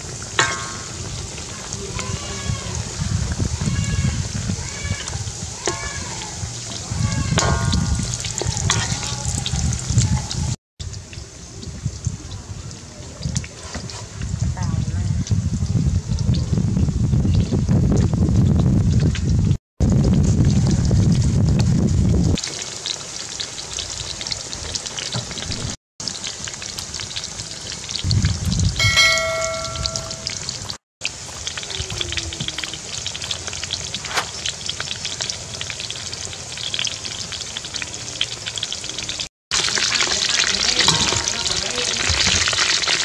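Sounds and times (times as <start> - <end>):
oil crackling and sizzling: 0.0 - 43.0
low rumble: 6.5 - 10.5
brief clear tone: 28.8 - 30.4.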